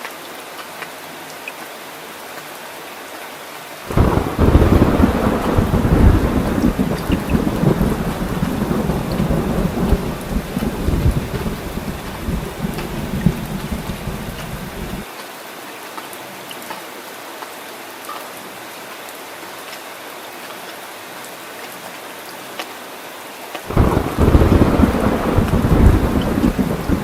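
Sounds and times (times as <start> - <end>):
heavy rain: 0.0 - 27.0
thunder rumble: 3.9 - 15.0, 23.7 - 27.0.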